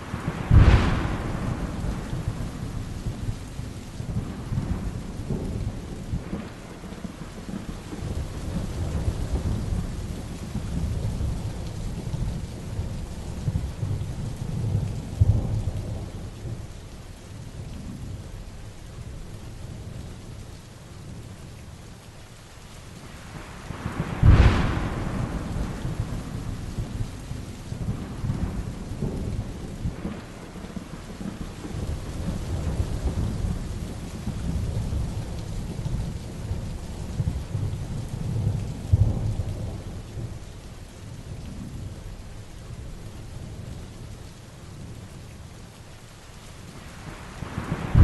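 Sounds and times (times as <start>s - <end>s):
thunder: 0.0s - 16.7s, 23.4s - 40.4s, 46.9s - 48.0s
heavy rain: 0.0s - 48.0s.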